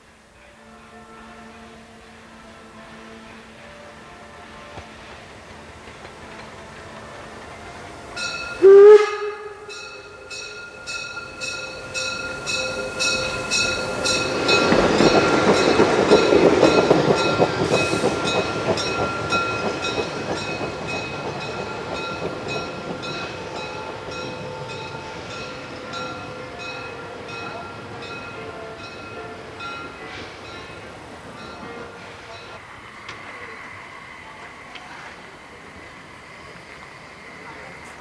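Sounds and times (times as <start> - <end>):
steam locomotive exhaust beats: 0.0 - 38.0
steam locomotive whistle: 0.2 - 5.4, 6.2 - 20.3, 21.5 - 30.8.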